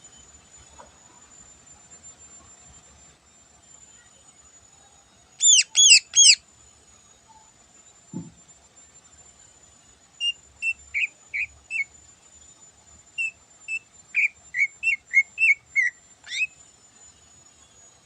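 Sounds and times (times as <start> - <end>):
bird whistling clear notes: 5.4 - 6.4.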